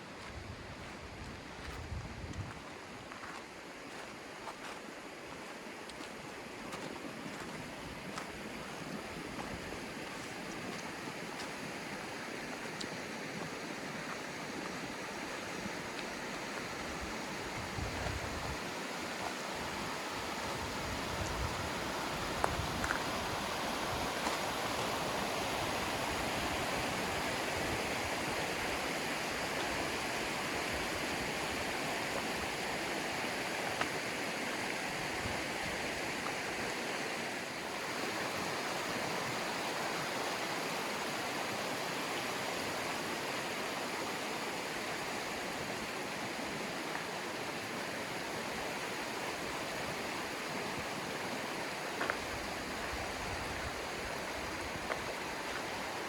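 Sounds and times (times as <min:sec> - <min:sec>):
river rushing over rocks: 0:02.8 - 0:56.0.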